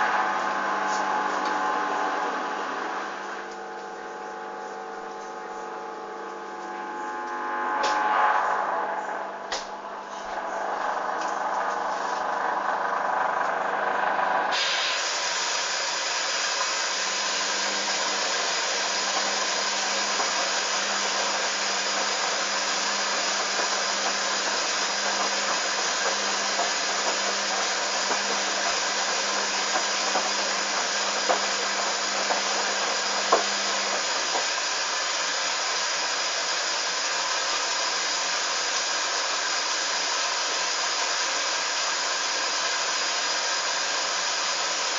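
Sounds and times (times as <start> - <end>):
low hum: 0.0 - 14.6
water rushing through fill valve: 14.5 - 44.9.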